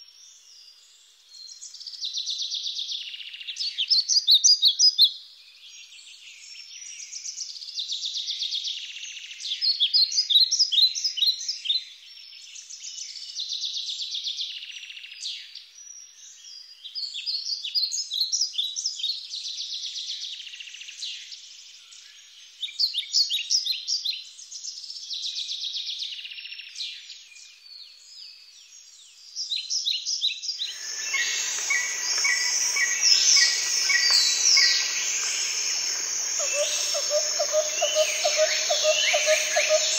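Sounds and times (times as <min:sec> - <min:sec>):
birds chirping and trilling: 0:30.5 - 0:39.9
buzzing with regular ticks: 0:30.9 - 0:39.9.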